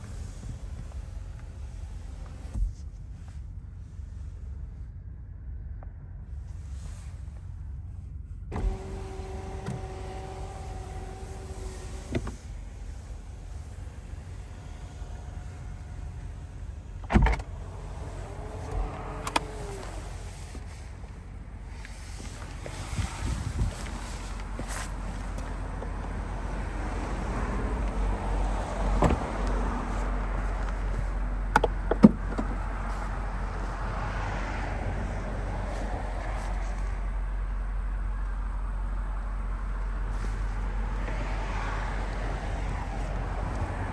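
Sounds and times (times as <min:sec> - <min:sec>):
power window motor whining: 0:00.0 - 0:02.8, 0:08.5 - 0:37.3, 0:39.6 - 0:43.9
car low rumble: 0:00.0 - 0:43.9
click: 0:18.6 - 0:19.8.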